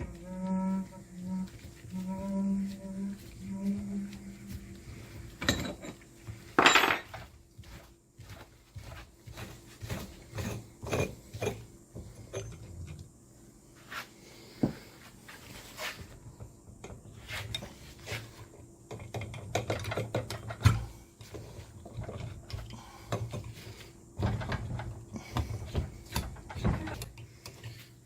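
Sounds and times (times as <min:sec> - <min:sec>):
metal tools clinking and knocking: 0:05.4 - 0:06.0, 0:06.6 - 0:07.3.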